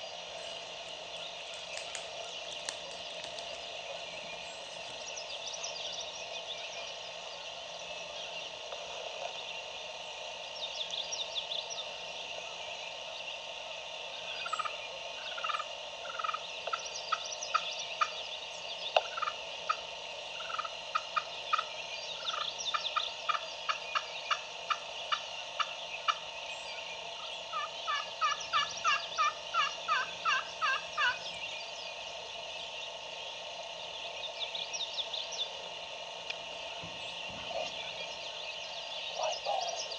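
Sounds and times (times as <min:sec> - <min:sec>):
faint songbirds chirping: 0:00.0 - 0:39.9
turkey yelping: 0:19.0 - 0:26.2, 0:27.2 - 0:31.2.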